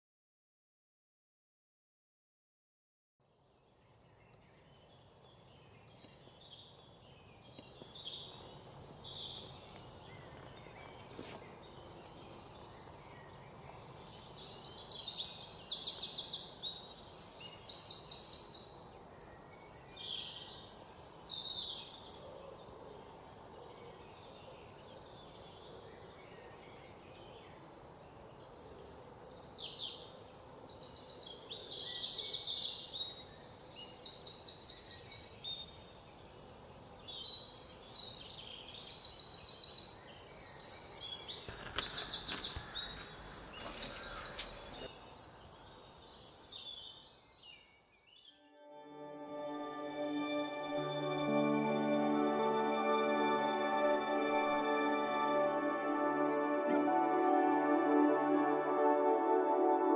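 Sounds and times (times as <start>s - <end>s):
faint ambient hiss: 3.3s - 59.9s
birds chirping and calling: 37.4s - 47.0s.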